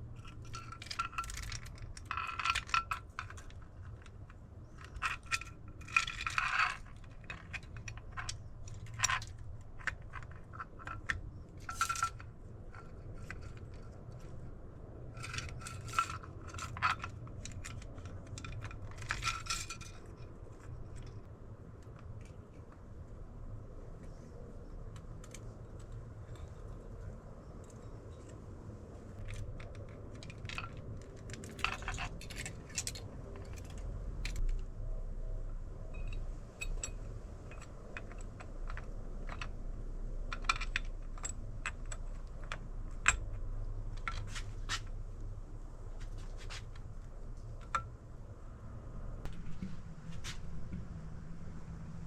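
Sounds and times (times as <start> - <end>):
low steady hum: 0.0 - 52.0
metal tools clicking and clinking: 0.2 - 14.5, 15.1 - 21.2, 24.9 - 34.4, 36.0 - 44.9.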